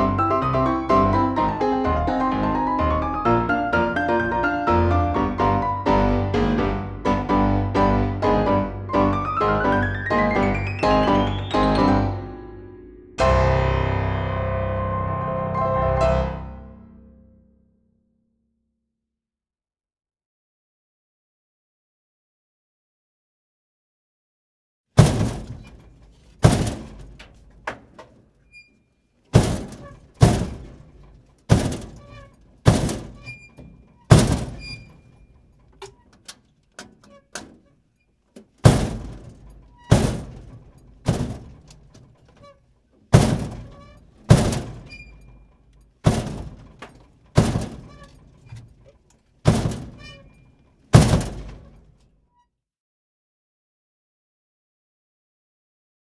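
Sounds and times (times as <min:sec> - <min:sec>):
loud heavy thuds: 0:25.0 - 0:28.2, 0:29.3 - 0:37.7, 0:38.4 - 0:42.5, 0:43.1 - 0:52.0
smaller knocks: 0:25.0 - 0:28.2, 0:29.4 - 0:37.7, 0:38.4 - 0:42.5, 0:43.1 - 0:52.0.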